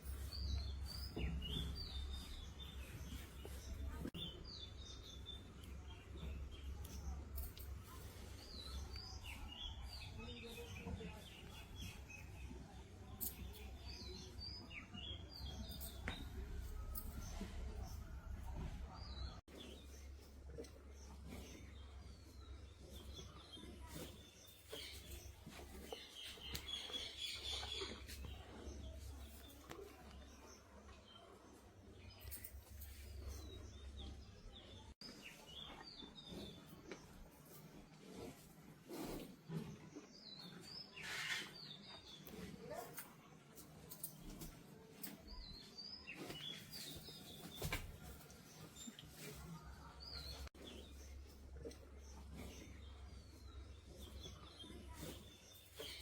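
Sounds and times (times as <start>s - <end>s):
small birds chirping: 0.0s - 56.0s
faint high-pitched bird chirping: 40.1s - 43.2s.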